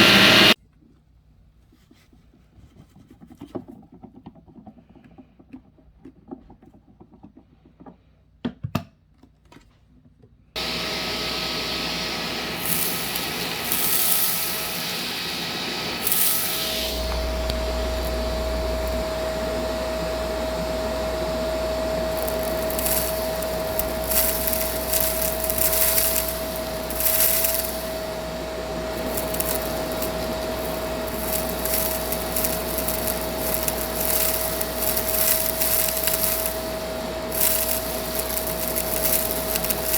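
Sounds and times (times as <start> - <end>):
vacuum cleaner running: 0.0 - 0.6, 10.6 - 39.9.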